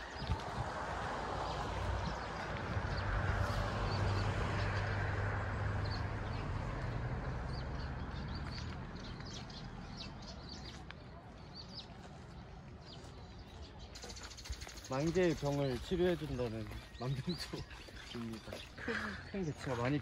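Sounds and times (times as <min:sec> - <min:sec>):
small birds chirping: 0:05.8 - 0:20.0.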